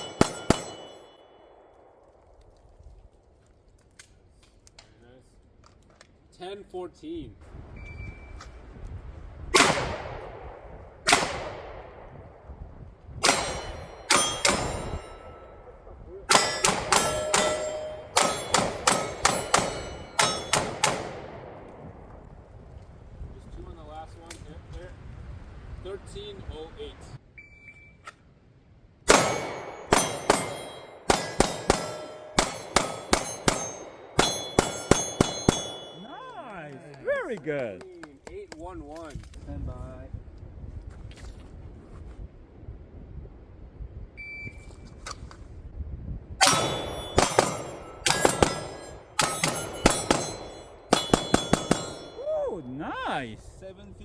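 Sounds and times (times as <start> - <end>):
steel targets ringing: 0.0 - 1.5, 13.2 - 21.1, 29.1 - 36.4, 46.4 - 52.4
pistol shots echoing: 0.0 - 1.9, 9.6 - 12.1, 13.2 - 15.4, 16.3 - 21.8, 29.1 - 36.1, 46.4 - 52.2.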